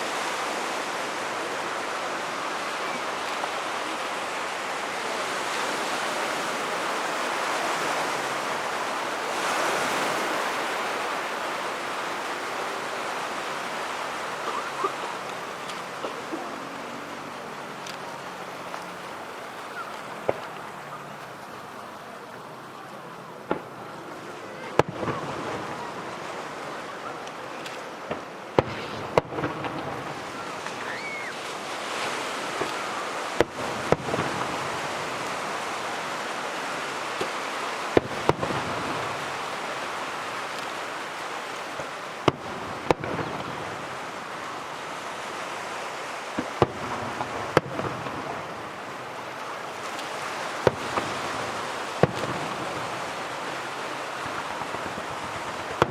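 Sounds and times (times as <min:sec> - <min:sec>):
fireworks bursting with sharp bangs: 0:00.0 - 0:55.9
rising firework whistle: 0:28.6 - 0:35.3.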